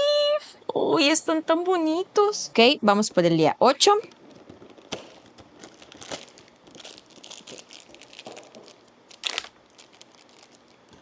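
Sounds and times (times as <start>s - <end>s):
plastic bag crinkling: 3.8s - 11.0s
cardboard box being handled: 4.0s - 11.0s.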